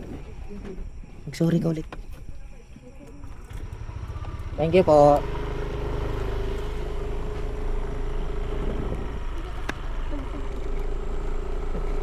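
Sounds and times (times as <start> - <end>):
motorcycle engine running: 3.2 - 12.0.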